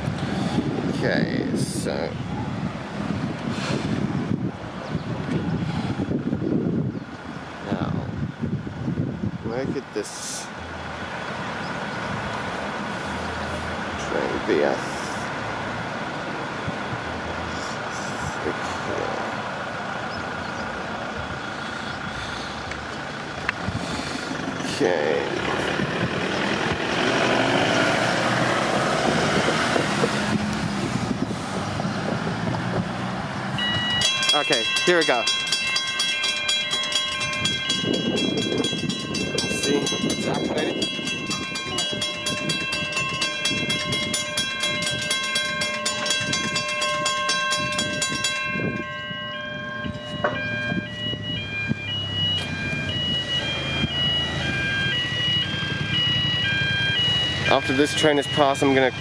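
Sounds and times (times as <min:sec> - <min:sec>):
engine hum: 0:00.0 - 0:59.0
level crossing bells ringing: 0:33.5 - 0:59.0
two-tone electronic warning tone: 0:36.9 - 0:59.0.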